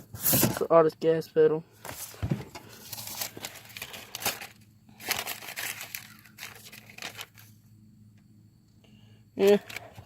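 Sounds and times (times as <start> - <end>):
rustling and crinkling: 1.8 - 7.7.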